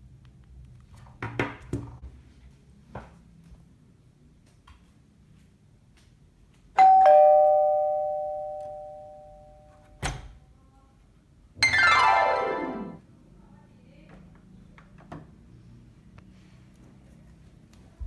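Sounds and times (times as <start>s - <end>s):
two-note doorbell chime: 6.8s - 9.8s, 11.6s - 13.0s
steeply descending pitch slide: 11.6s - 13.0s.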